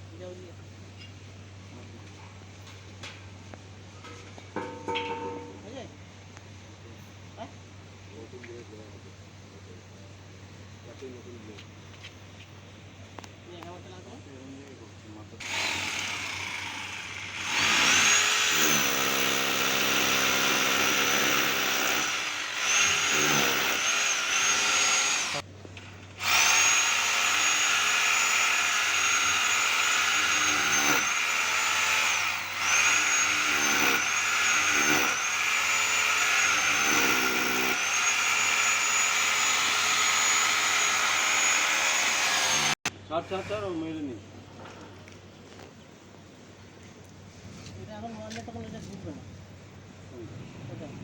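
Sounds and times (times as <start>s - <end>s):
electric power tool whining: 15.4s - 25.4s, 26.2s - 42.9s.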